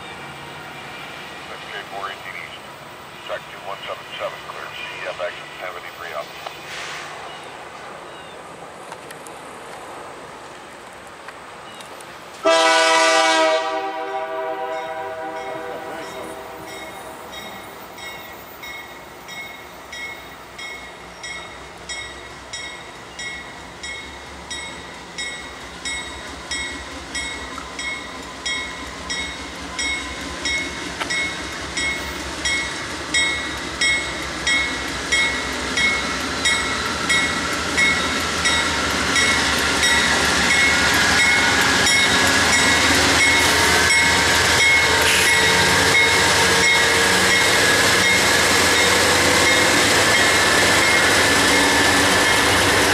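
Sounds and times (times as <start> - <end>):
freight train passing: 0.0 - 52.9
crossing bell ringing: 14.6 - 52.9.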